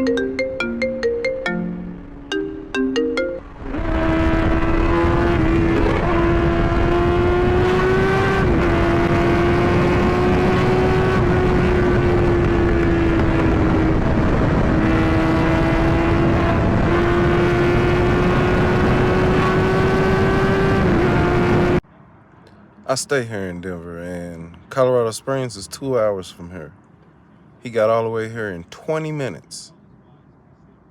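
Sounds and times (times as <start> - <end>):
wind and road noise: 0.0 - 30.9
motorcycle engine at high speed: 3.4 - 21.8.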